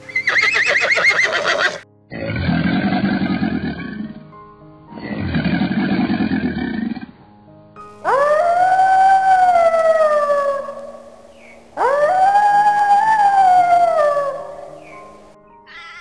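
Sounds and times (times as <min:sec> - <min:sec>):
large animal roaring: 0:02.1 - 0:04.2, 0:05.0 - 0:07.2
long rising howl: 0:08.0 - 0:15.4.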